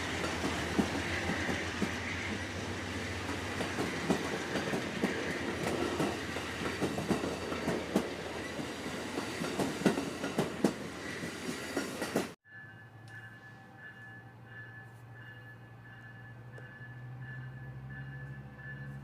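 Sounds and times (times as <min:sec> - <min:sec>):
train wheels clacking on rails: 0:00.0 - 0:12.4
train rumbling: 0:00.0 - 0:19.0.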